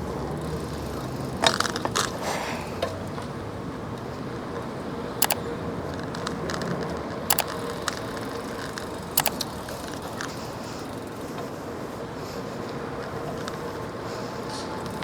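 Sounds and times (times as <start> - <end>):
sharp double clicks: 5.2 - 5.4, 7.3 - 8.1, 8.8 - 9.9
light ticks: 7.3 - 8.0, 8.6 - 10.3.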